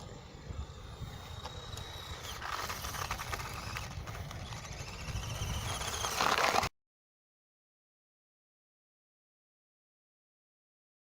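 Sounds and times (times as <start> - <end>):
toy truck motor whine: 0.0 - 6.7
toy truck clattering: 1.1 - 6.7.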